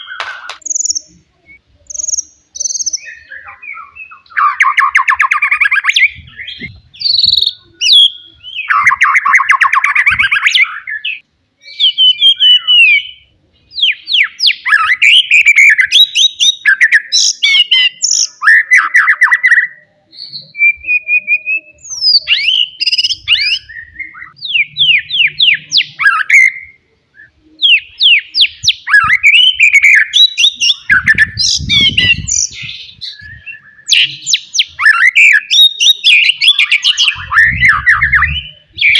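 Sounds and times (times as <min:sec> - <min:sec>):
bird singing whistles and rattles: 0:27.6 - 0:38.9.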